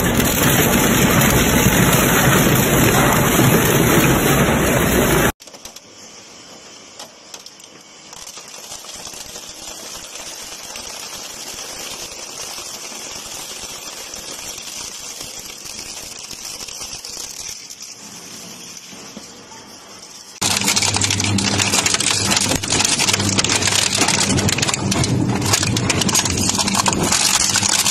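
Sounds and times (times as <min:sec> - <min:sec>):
shredder crackling and clattering: 0:00.0 - 0:05.8, 0:07.4 - 0:19.1, 0:20.4 - 0:27.9.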